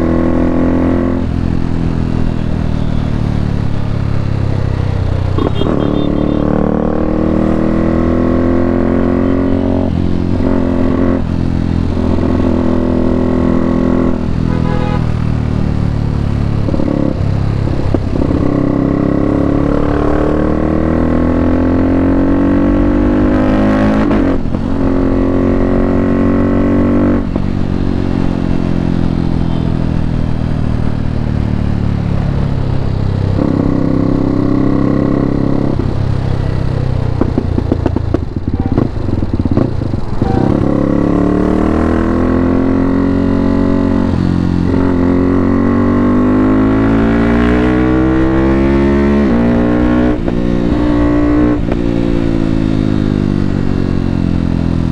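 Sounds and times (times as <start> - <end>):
motorcycle engine changing gears: 32.4 - 54.9.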